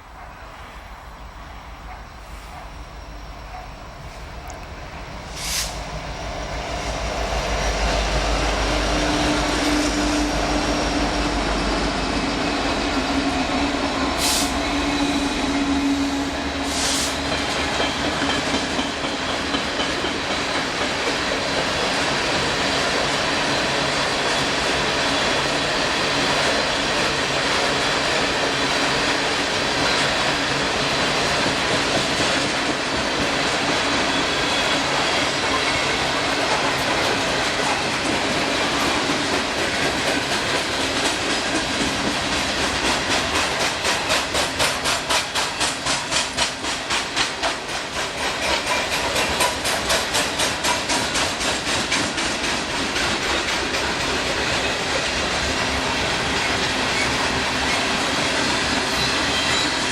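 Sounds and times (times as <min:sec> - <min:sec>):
train wheels rumbling on rail: 0:00.0 - 0:59.9
wheels clicking over rail joints: 0:35.4 - 0:59.9.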